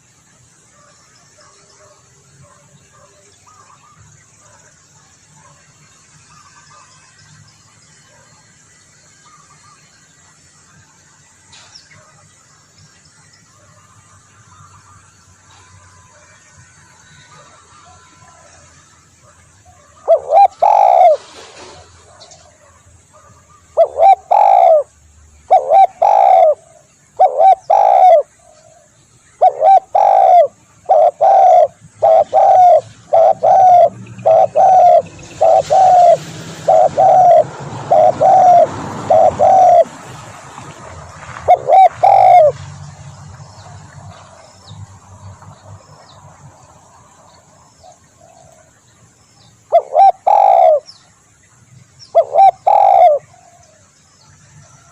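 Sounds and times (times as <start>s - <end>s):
dove cooing: 19.9s - 22.3s, 23.8s - 24.9s, 25.5s - 28.8s, 29.4s - 40.0s, 41.4s - 42.6s, 49.7s - 50.9s, 52.1s - 53.6s.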